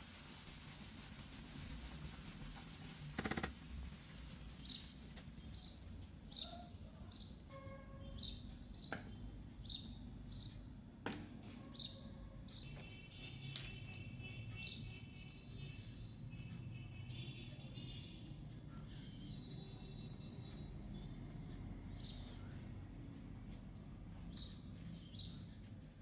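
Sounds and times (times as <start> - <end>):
small bird chirping: 4.2 - 10.7, 17.9 - 22.8, 24.2 - 25.7.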